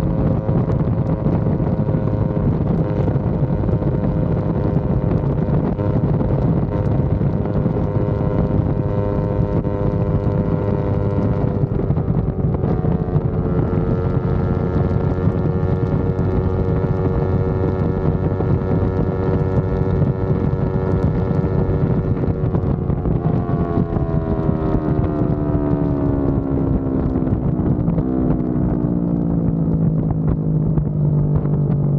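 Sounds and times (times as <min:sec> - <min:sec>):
motorcycle engine running: 0:00.0 - 0:31.9
wind rushing over microphone: 0:00.0 - 0:31.9.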